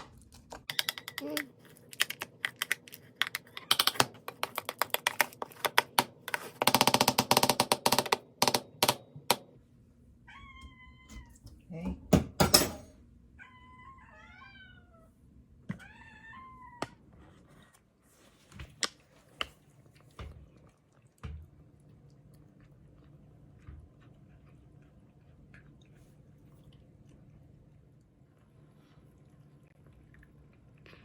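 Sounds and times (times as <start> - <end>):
cat meowing: 10.3 - 11.4, 13.4 - 15.1.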